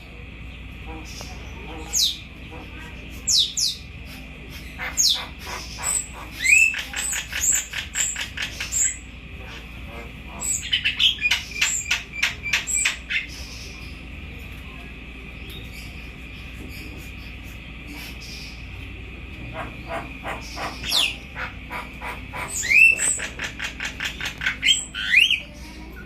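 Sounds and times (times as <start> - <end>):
parrot rapid chirps: 4.5 - 9.1, 9.9 - 13.8, 19.5 - 25.4.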